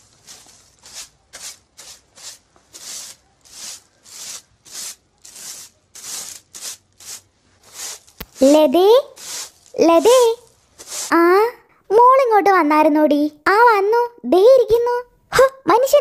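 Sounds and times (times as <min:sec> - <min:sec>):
stick broom sweeping grit: 0:00.0 - 0:11.4.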